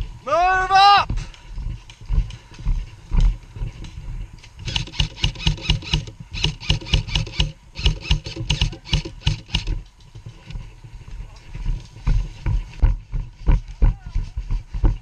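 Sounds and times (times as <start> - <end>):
airsoft gunfire bursts: 4.6 - 9.8.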